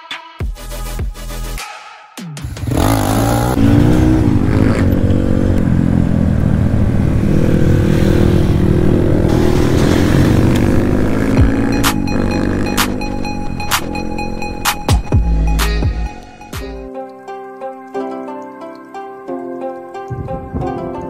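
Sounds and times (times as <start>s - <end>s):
dirt bike engine revving: 2.4s - 15.2s.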